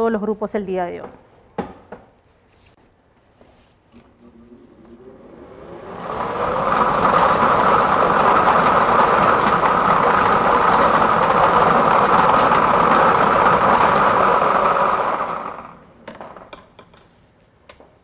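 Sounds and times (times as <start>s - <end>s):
lottery balls clattering in machine: 6.0s - 16.9s.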